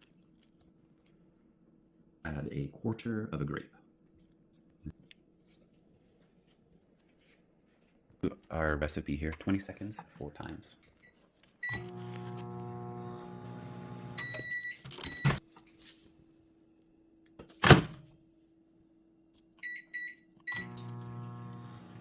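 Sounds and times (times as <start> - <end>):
microwave beeps: 11.6 - 15.4, 19.6 - 22.0
microwave oven humming: 11.6 - 15.4, 20.5 - 22.0
keypad beeps: 14.2 - 15.4, 19.6 - 20.7.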